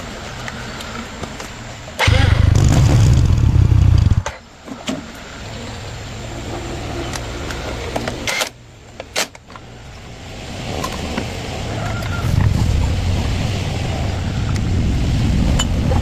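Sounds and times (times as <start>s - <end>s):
motorcycle engine rumbling: 2.0s - 4.4s.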